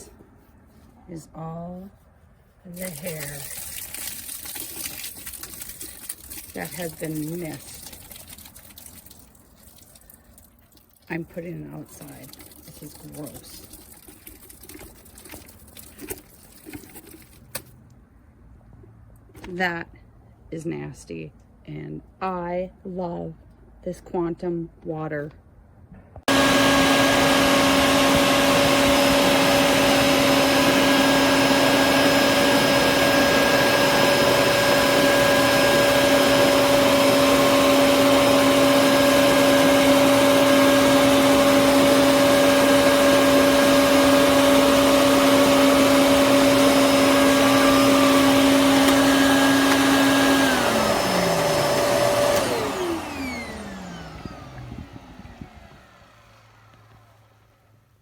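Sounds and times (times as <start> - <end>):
vacuum cleaner motor whining: 26.3 - 57.5.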